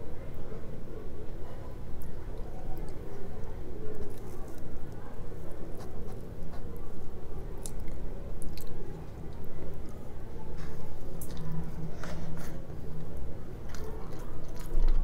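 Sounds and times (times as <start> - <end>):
close chewing of fried food: 2.7 - 6.7, 11.1 - 15.0.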